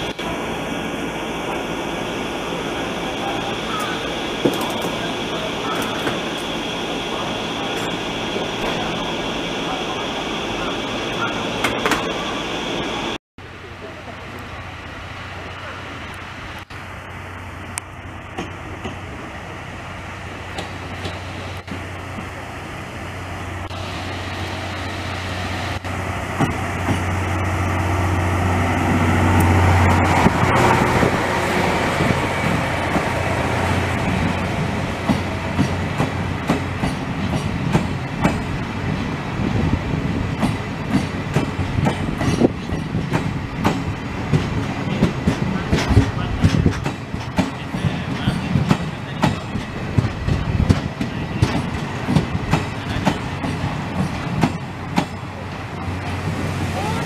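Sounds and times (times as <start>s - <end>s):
passenger train passing: 0.0s - 57.0s
wheels clacking over rail joints: 28.8s - 38.6s, 40.3s - 57.0s.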